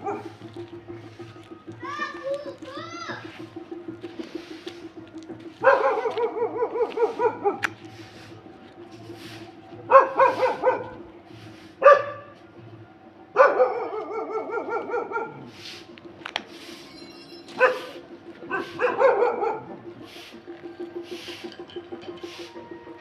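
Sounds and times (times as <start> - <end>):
dog yelping: 0.0 - 0.4, 5.6 - 8.4, 9.9 - 11.0, 13.4 - 15.5, 17.4 - 19.8
dog barking: 0.0 - 0.5, 5.6 - 8.2, 9.9 - 11.0, 11.8 - 12.4, 13.4 - 15.5, 17.5 - 20.1.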